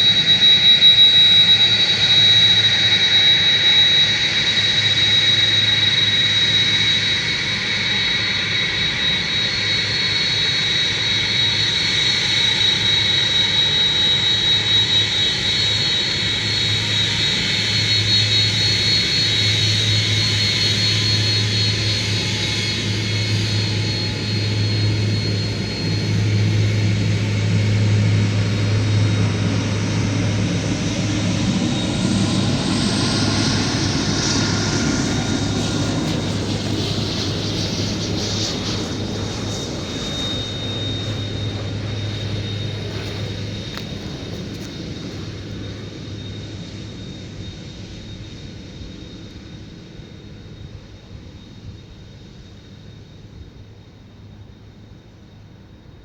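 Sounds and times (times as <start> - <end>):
high-pitched engine whine: 0.0 - 56.0
jet engines running: 0.0 - 56.0
low hum: 22.9 - 46.7.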